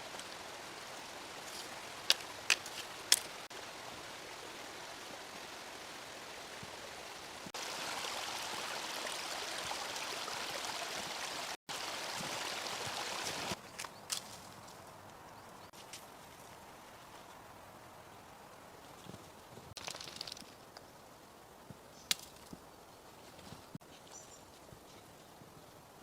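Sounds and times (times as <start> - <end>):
rushing stream water: 0.0 - 13.6.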